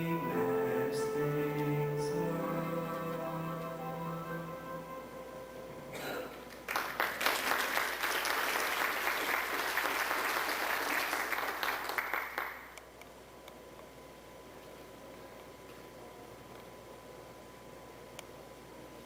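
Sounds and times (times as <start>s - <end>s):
held note of a song: 0.0s - 6.6s
audience applauding: 6.5s - 12.8s.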